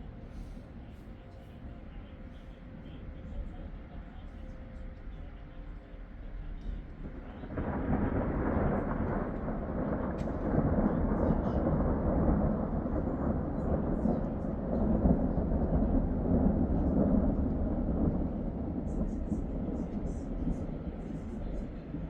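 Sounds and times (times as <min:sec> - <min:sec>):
thunder rumbling: 0:06.4 - 0:22.0.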